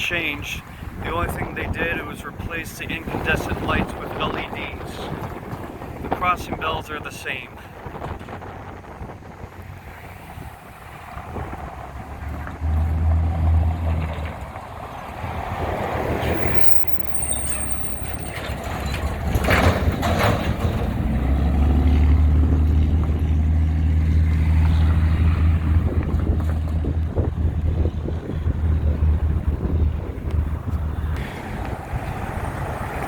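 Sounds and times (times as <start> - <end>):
diesel engine rumble: 0.0 - 33.0
vehicles swishing past: 0.0 - 33.0.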